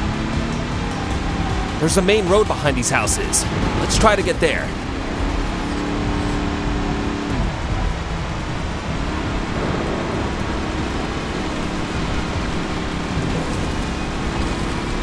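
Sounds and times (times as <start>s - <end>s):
rain: 4.8s - 15.0s.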